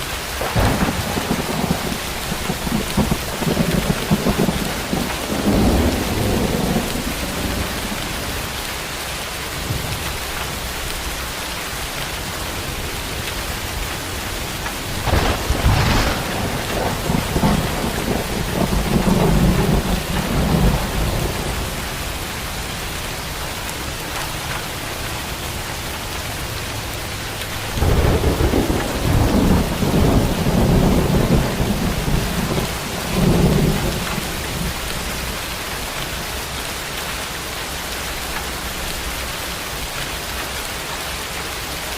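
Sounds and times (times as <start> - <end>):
heavy rain: 0.0 - 41.9
thunder cracking and rumbling: 0.4 - 8.6, 13.6 - 22.8, 27.4 - 36.1.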